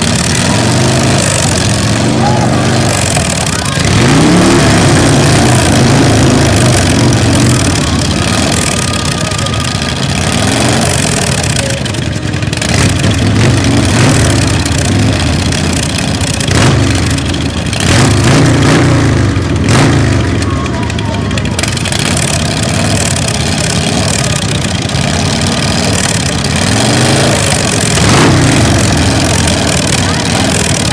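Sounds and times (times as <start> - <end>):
motorcycle engines revving: 0.0 - 30.9.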